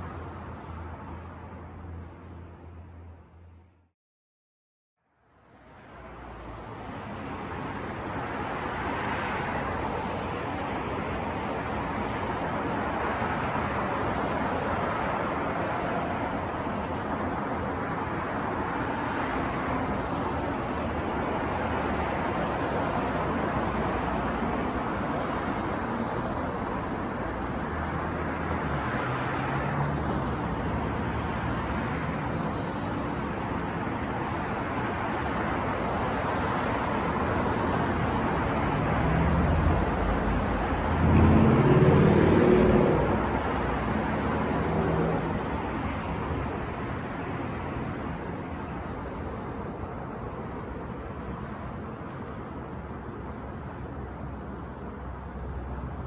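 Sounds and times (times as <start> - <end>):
wind: 0.0 - 3.9, 5.0 - 56.0
passing cars: 5.4 - 56.0
heavy vehicle passing: 38.4 - 48.6.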